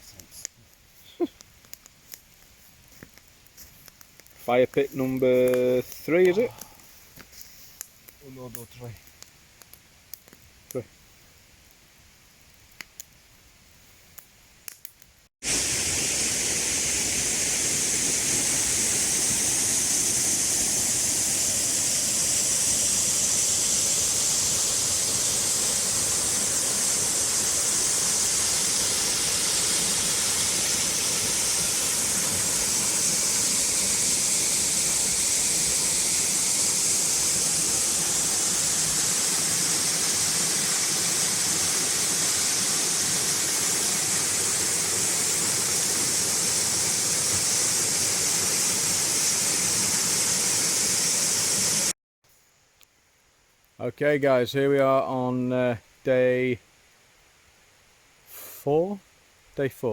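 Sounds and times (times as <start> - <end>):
waterfall rushing: 15.4 - 51.9.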